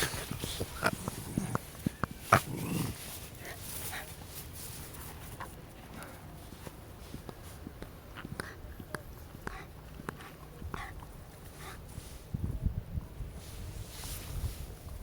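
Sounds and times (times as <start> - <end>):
dog making small sounds: 0.0 - 3.1
low rustle: 0.0 - 7.6, 13.2 - 15.0.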